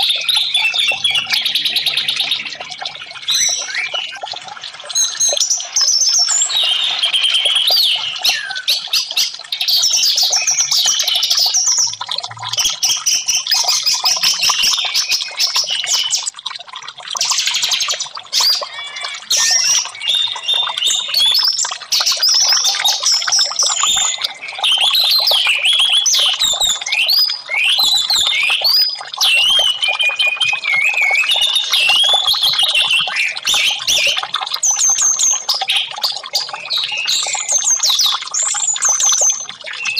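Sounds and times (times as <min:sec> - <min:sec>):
thrush singing whistles: 0:00.0 - 0:02.6, 0:03.2 - 0:04.3, 0:04.9 - 0:12.0, 0:12.7 - 0:16.3, 0:17.6 - 0:39.9.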